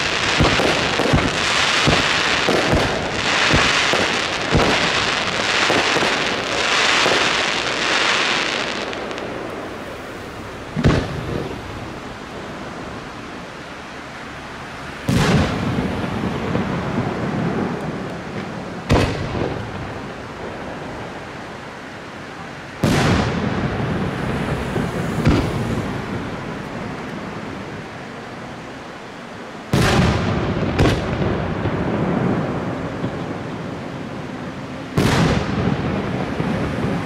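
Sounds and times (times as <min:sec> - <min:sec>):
firework shells booming: 0:00.0 - 0:09.6, 0:10.7 - 0:11.6, 0:15.1 - 0:20.9, 0:22.8 - 0:24.2, 0:24.8 - 0:26.2, 0:29.7 - 0:33.6, 0:34.9 - 0:37.0
rolling echo: 0:00.0 - 0:09.7.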